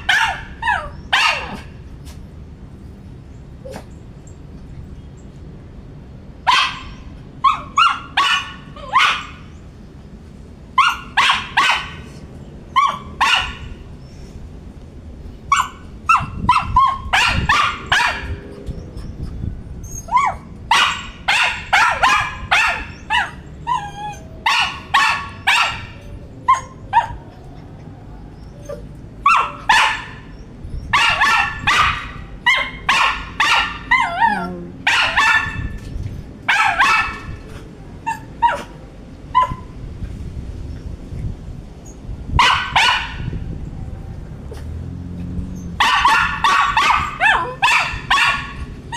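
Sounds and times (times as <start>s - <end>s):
dog barking: 0.0s - 1.7s, 6.5s - 9.4s, 10.8s - 12.1s, 12.8s - 13.7s, 15.5s - 18.5s, 20.2s - 23.4s, 24.4s - 27.2s, 29.2s - 30.2s, 30.9s - 35.8s, 36.5s - 37.4s, 42.4s - 43.3s, 45.8s - 48.7s
dog whining: 18.5s - 20.5s, 22.8s - 24.5s, 25.6s - 29.6s, 33.8s - 35.7s.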